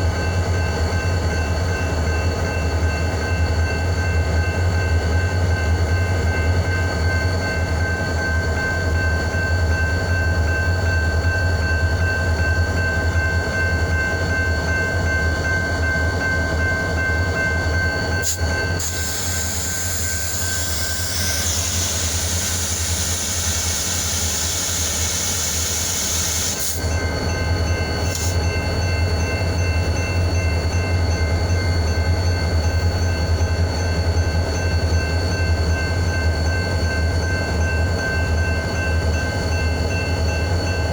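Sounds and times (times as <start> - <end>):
diesel locomotive droning: 0.0 - 40.9
air hissing: 18.2 - 26.9.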